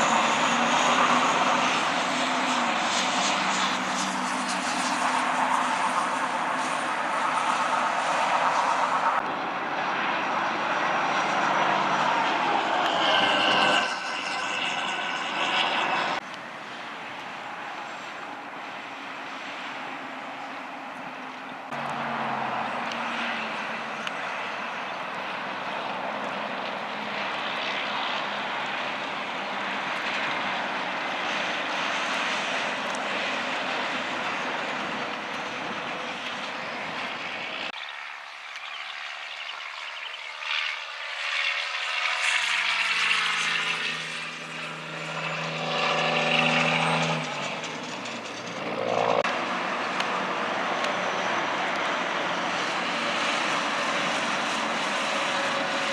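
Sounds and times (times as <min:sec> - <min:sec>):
heavy truck engine passing by: 0:00.0 - 0:16.2, 0:18.8 - 0:37.7
road traffic noise: 0:00.0 - 0:55.9.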